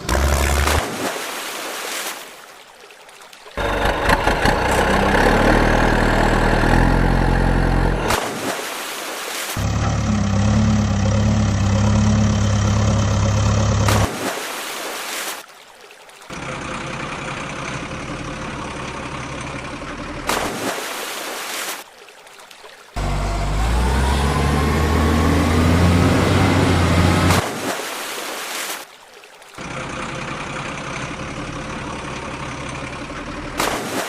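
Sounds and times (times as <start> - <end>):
heavy vehicle engine: 0.0 - 0.8, 3.6 - 8.2, 9.6 - 14.1, 16.3 - 20.4, 23.0 - 27.4, 29.6 - 33.8
engine whine: 3.6 - 8.2, 9.6 - 14.1, 23.0 - 27.4.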